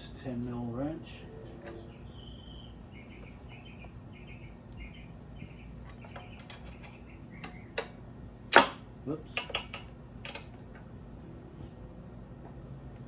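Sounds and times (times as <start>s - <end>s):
bird chirping: 1.2s - 7.9s.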